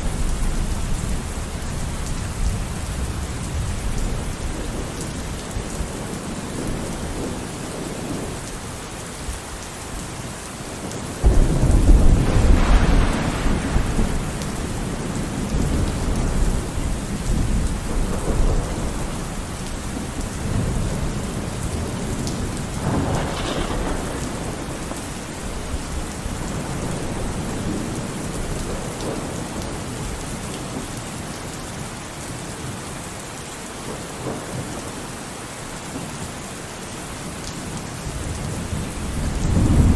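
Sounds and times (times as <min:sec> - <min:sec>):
steady rain falling: 0:00.0 - 0:39.9
thunder rumbling: 0:10.8 - 0:30.8, 0:37.6 - 0:39.9.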